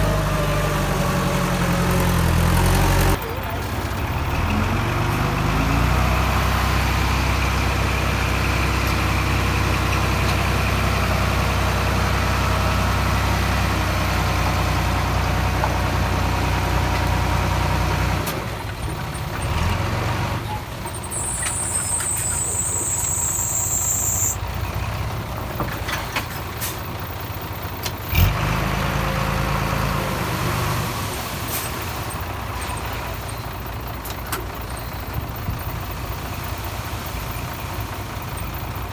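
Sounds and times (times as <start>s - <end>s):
heavy machinery diesel engine running: 0.0s - 38.9s
high hiss: 21.7s - 24.4s.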